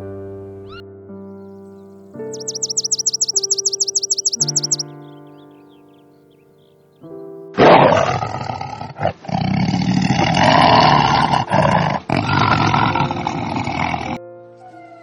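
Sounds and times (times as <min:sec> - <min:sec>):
large animal roaring: 0:07.6 - 0:14.2.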